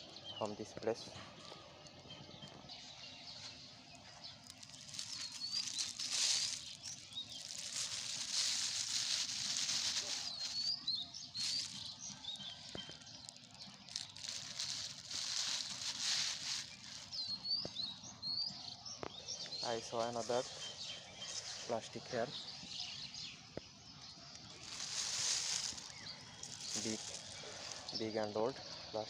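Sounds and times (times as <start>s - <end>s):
small birds chirping: 0.0s - 29.0s
litter rustling and crackling: 3.4s - 17.8s, 24.4s - 28.0s.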